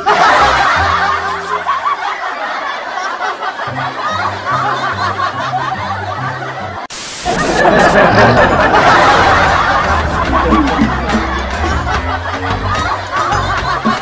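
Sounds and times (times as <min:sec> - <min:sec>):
laughter: 0:00.0 - 0:14.0
music with bass line: 0:07.6 - 0:14.0.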